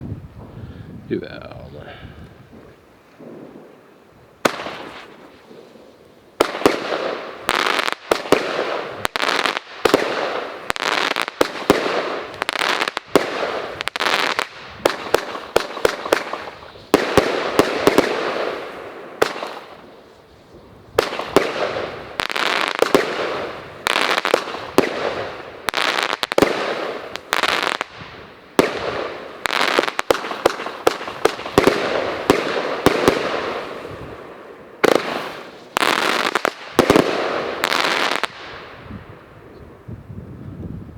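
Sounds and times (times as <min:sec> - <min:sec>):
fireworks cake firing shots: 0:04.4 - 0:05.7, 0:06.4 - 0:19.8, 0:21.0 - 0:34.0, 0:34.8 - 0:38.7.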